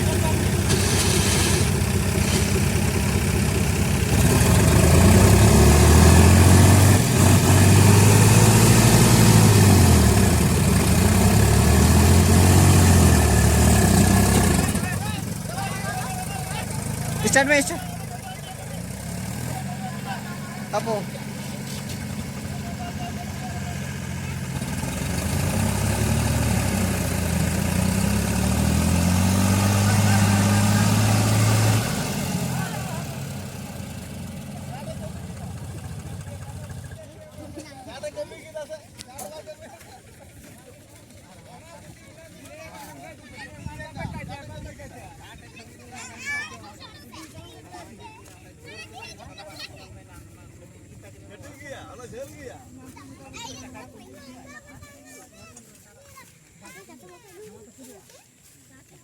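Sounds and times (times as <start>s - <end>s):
tractor engine revving: 0.0s - 37.2s.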